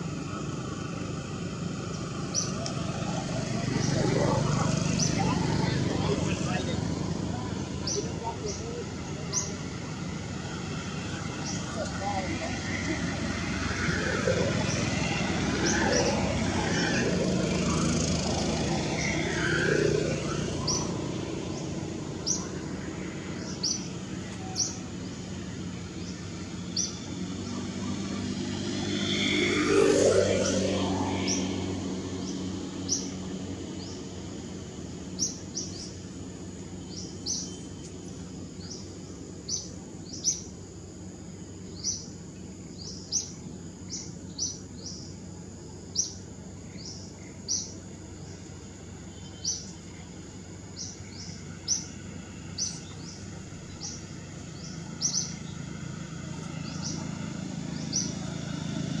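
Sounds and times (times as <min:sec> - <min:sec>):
bird chirping: 0:02.2 - 0:06.5, 0:23.4 - 0:27.1, 0:35.1 - 0:36.0, 0:36.8 - 0:40.5, 0:41.6 - 0:45.2, 0:45.9 - 0:48.4, 0:49.1 - 0:50.0, 0:50.7 - 0:55.7, 0:56.4 - 0:58.4.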